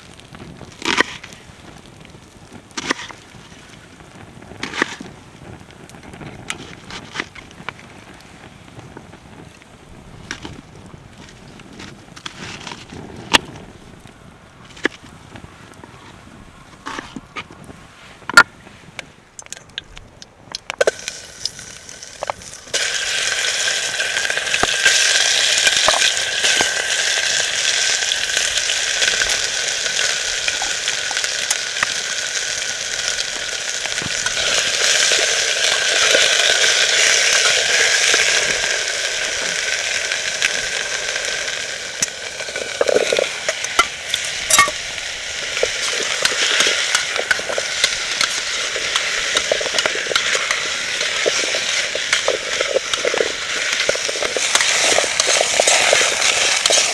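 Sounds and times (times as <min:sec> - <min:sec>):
food sizzling in a hot pan: 0:20.8 - 0:56.9
utensil clicks and knocks: 0:45.5 - 0:56.9.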